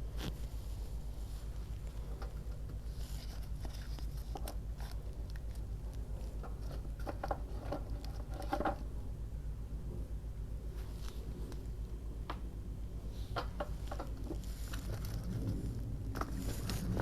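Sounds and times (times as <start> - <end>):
steady low hum: 0.0 - 17.0
paper rustling and scraping: 2.4 - 8.8, 13.9 - 17.0.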